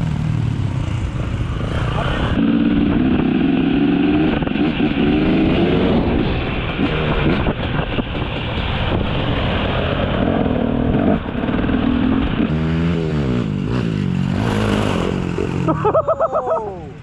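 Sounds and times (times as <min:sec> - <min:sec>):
dirt bike engine revving: 0:00.0 - 0:16.2.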